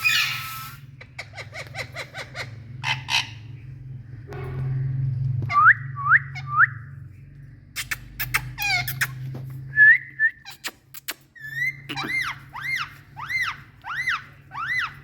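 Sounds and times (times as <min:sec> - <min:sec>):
parrot screechy call: 0:00.0 - 0:03.5, 0:08.6 - 0:09.2, 0:11.4 - 0:15.0
parrots whistling: 0:00.0 - 0:03.6, 0:07.8 - 0:15.0
sharp clicks: 0:10.5 - 0:11.4.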